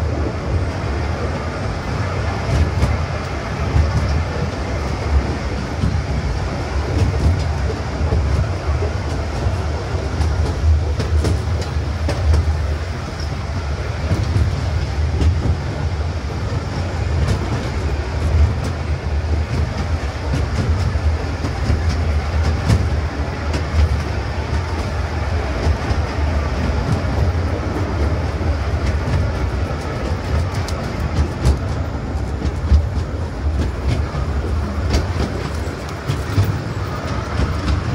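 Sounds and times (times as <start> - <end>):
train rumbling along track: 0.0 - 37.9
wheels clicking over rails: 2.2 - 37.9.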